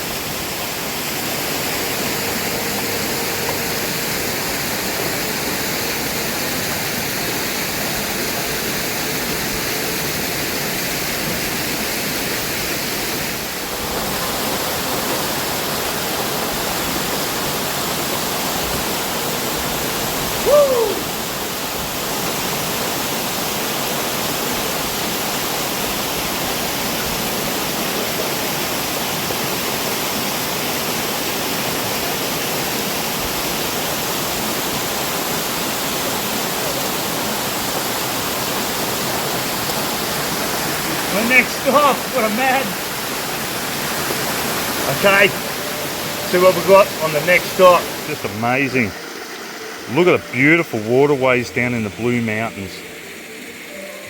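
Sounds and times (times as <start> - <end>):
waterfall and creek rushing: 0.0 - 54.0
whistled falling note: 20.4 - 21.2.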